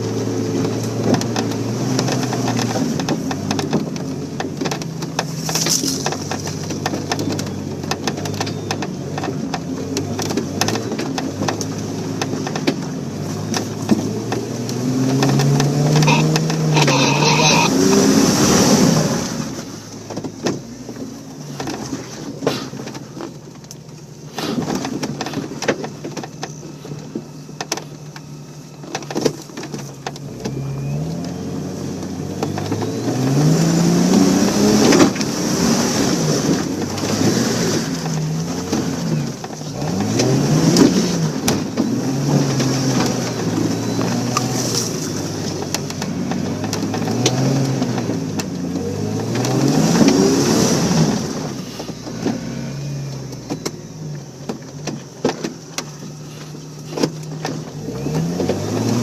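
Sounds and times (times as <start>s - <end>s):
engine revving under load: 0.0s - 20.0s, 30.0s - 59.0s.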